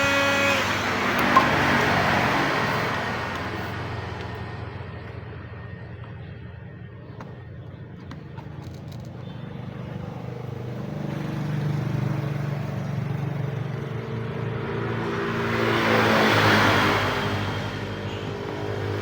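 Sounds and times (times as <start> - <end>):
hot-air gun blowing: 0.0 - 3.8.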